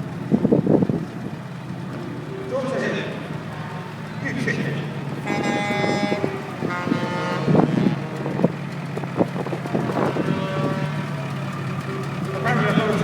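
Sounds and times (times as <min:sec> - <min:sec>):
engine rumble: 0:00.0 - 0:13.0
vehicle horn blasts: 0:05.1 - 0:11.6.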